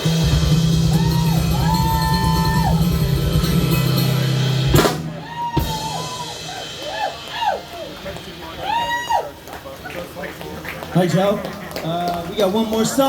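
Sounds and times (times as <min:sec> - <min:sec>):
crowd whistling: 0:00.0 - 0:03.2, 0:05.1 - 0:09.4
live band playing: 0:00.0 - 0:13.0.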